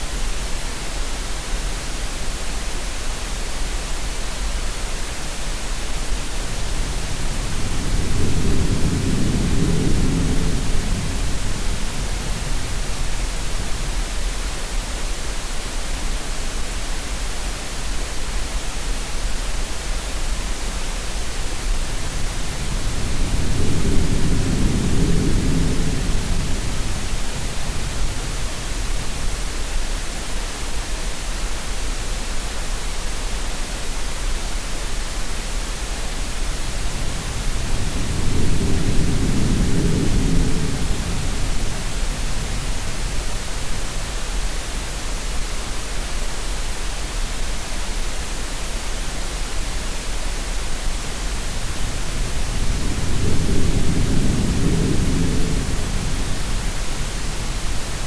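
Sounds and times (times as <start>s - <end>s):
steady noise hiss: 0.0s - 58.0s.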